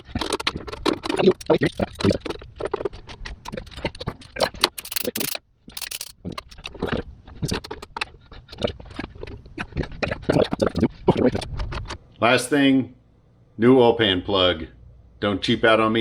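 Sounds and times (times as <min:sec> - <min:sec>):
hand tools tapping metal parts: 0:00.0 - 0:02.2, 0:03.5 - 0:06.6.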